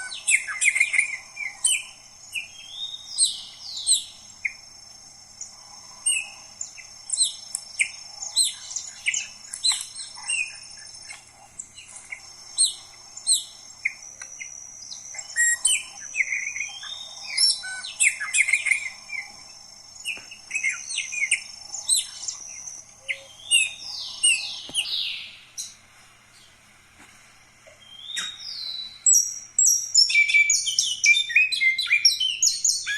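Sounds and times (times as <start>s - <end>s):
songbirds chirping and whistling: 0.0s - 32.9s.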